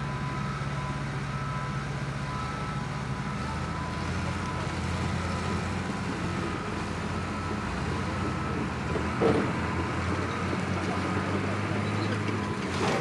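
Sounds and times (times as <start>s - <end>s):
bulldozer diesel engines droning: 0.0s - 13.0s.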